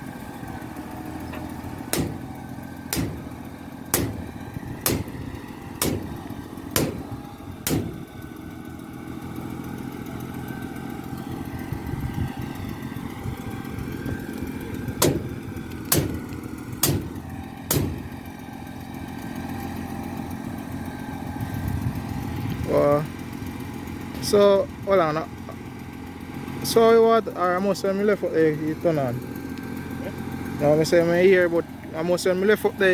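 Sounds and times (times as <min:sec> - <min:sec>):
truck engine running: 0:00.0 - 0:32.9
sharp knocks: 0:01.3 - 0:08.1, 0:15.0 - 0:18.2.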